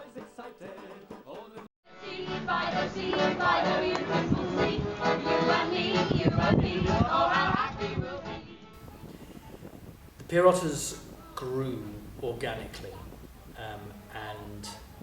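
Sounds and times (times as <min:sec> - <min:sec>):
voices singing together: 0:00.0 - 0:09.8.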